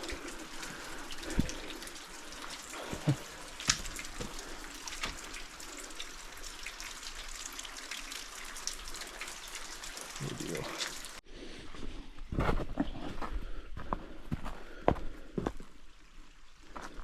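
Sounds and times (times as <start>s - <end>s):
creek water running over rocks: 0.0s - 11.2s
footsteps on wet stones: 2.4s - 5.3s.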